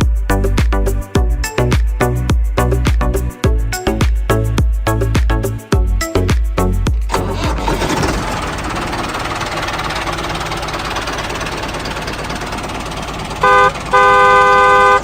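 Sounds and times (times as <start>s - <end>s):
small engine running: 7.0s - 15.0s
horn toots: 13.4s - 15.0s.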